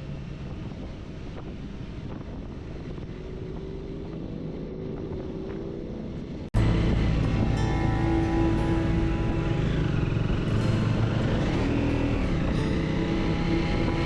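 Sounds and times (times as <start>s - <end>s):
motorcycle engine drone: 0.0s - 14.0s
wind rushing over microphone: 0.0s - 14.0s.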